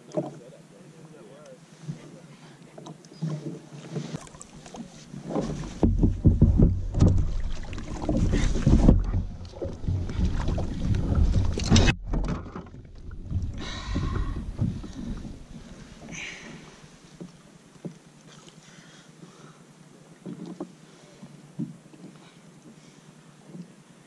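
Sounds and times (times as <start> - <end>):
water splashing: 2.9 - 19.4
wind on microphone: 5.7 - 12.0, 12.9 - 15.8.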